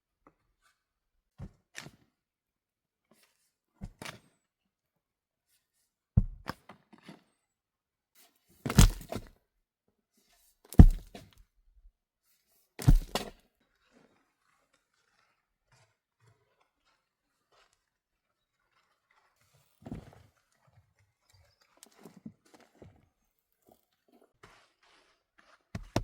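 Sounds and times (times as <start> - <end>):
heavy thunks: 8.7 - 9.2, 10.8 - 11.1, 12.8 - 13.3.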